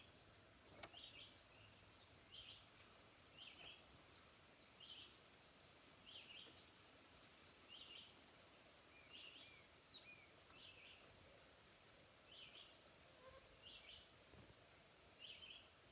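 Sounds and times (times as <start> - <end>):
faint birdsong: 0.0 - 15.9.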